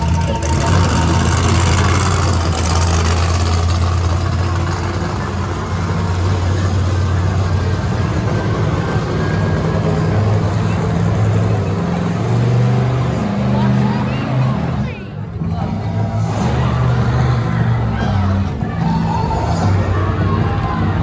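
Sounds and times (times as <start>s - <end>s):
monster truck engine running: 0.0s - 21.0s.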